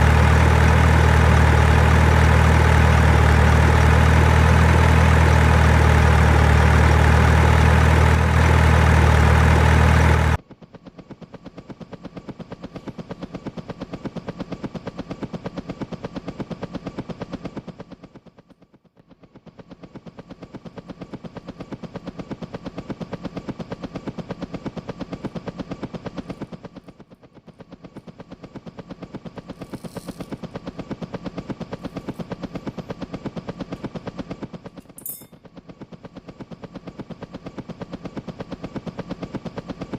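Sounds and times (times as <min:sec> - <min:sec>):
toy truck motor hum: 0:00.0 - 0:10.4, 0:29.5 - 0:30.4.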